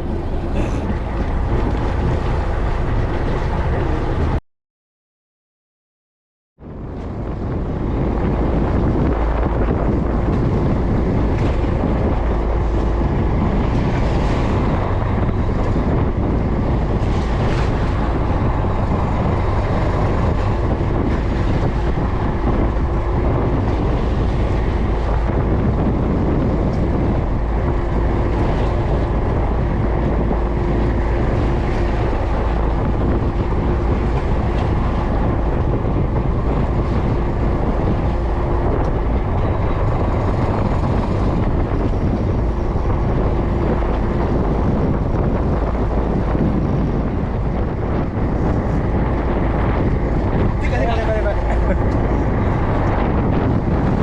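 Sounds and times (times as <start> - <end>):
boat engine running: 0.0 - 4.4, 6.6 - 54.0
wind buffeting microphone: 0.0 - 4.4, 6.6 - 54.0.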